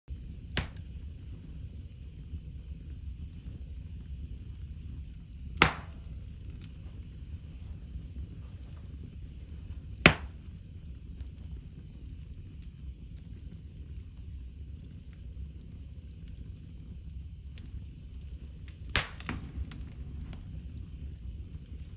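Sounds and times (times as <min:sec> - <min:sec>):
wood fire crackling: 0:00.1 - 0:21.9
sharp loud pops from fire: 0:00.4 - 0:01.4, 0:05.4 - 0:07.0, 0:07.9 - 0:11.4, 0:18.3 - 0:20.6.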